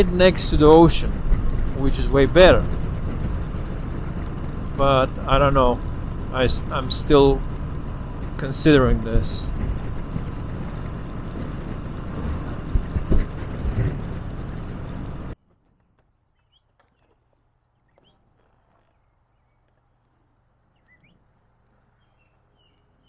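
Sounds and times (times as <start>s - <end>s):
wind and road noise: 0.0s - 23.0s
faint bird chirps: 16.3s - 19.7s, 20.7s - 21.2s, 21.9s - 23.0s.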